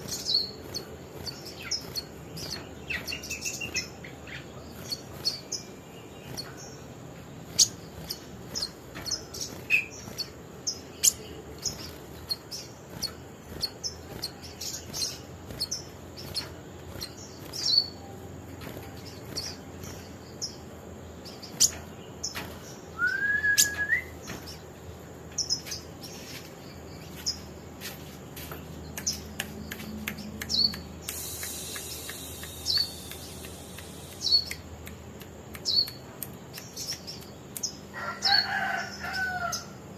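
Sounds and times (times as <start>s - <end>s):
small songbird chirping: 0.0s - 39.9s
rising whistled bird note: 23.0s - 24.2s.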